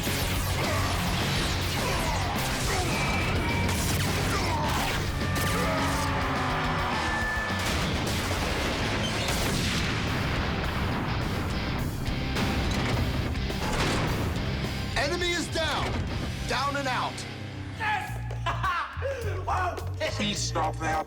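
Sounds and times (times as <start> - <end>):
action background music: 0.0 - 18.7
crashes and booms: 7.6 - 14.6
mechanical clanks: 12.3 - 14.5.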